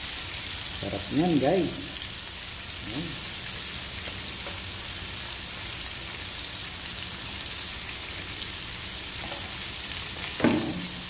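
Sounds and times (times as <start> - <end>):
fish deep-frying in oil: 0.0 - 11.0.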